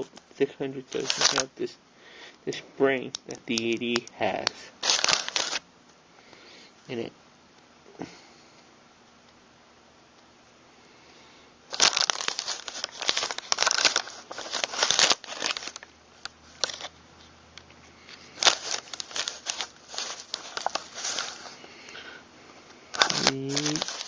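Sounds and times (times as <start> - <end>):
rustling and crinkling handling noise: 0.0 - 1.8, 3.0 - 5.6, 11.7 - 24.0.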